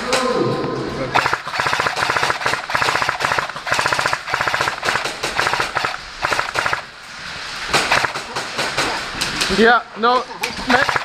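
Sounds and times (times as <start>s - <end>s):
airsoft machine gun bursts: 1.2s - 6.9s, 7.8s - 8.3s, 10.7s - 11.0s.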